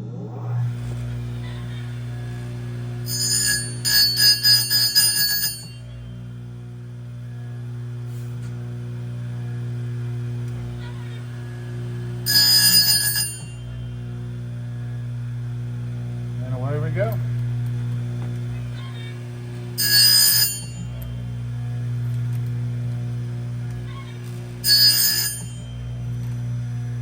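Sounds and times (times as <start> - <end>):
chain grinder humming: 0.2 - 27.0
grinding wheel on chainsaw teeth: 3.0 - 6.0, 10.5 - 13.7, 16.4 - 21.2, 23.7 - 27.0.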